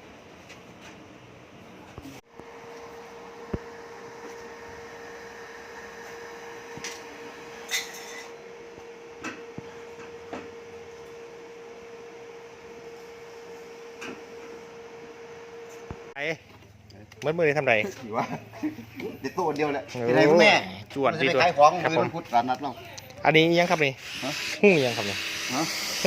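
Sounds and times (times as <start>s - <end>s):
steady mid-pitch hum: 1.5s - 16.4s.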